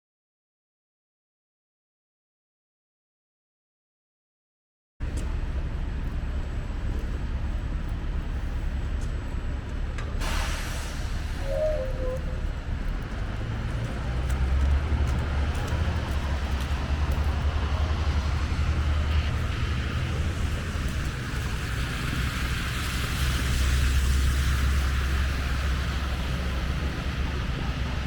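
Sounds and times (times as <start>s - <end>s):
traffic rumble with tyre hiss: 5.0s - 28.0s
short squeak: 11.2s - 12.5s.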